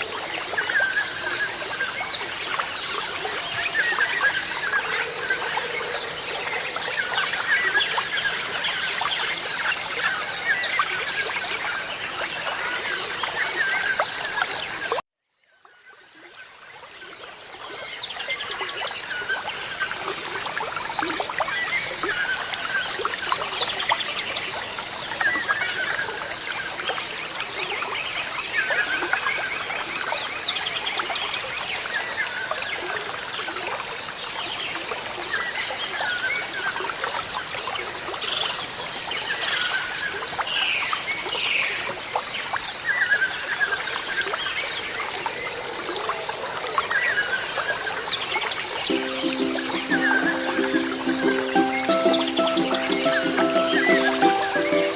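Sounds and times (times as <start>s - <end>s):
running water trickling: 0.0s - 54.9s
birds calling and singing: 48.9s - 54.9s.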